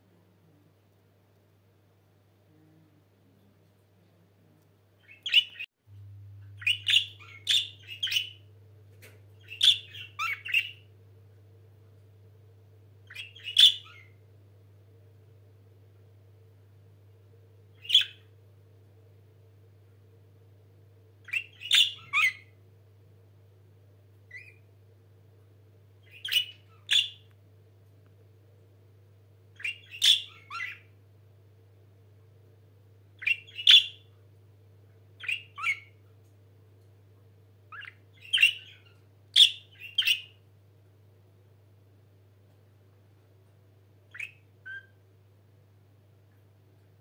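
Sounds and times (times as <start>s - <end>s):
faint steady hum: 0.0s - 47.0s
budgerigars chirping: 5.0s - 5.6s, 6.6s - 8.4s, 9.4s - 10.8s, 13.1s - 14.2s, 17.8s - 18.2s, 21.3s - 22.5s, 26.1s - 27.3s, 29.6s - 30.9s, 33.2s - 34.1s, 35.2s - 36.0s, 37.7s - 40.4s.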